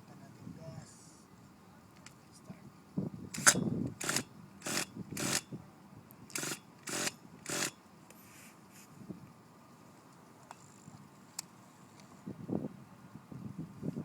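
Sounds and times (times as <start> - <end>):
engine starter whirring: 3.4 - 5.4, 6.4 - 7.8.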